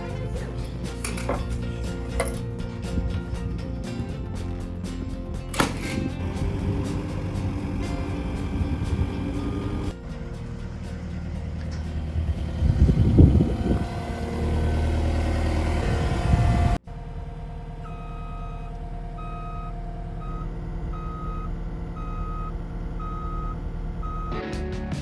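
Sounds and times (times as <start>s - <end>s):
lift engine running: 0.0s - 24.6s
warning alarm beeping: 12.1s - 24.5s.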